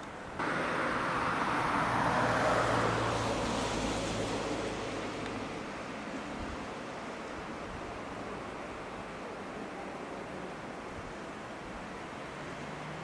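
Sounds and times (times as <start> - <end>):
train running past: 0.4 - 6.4.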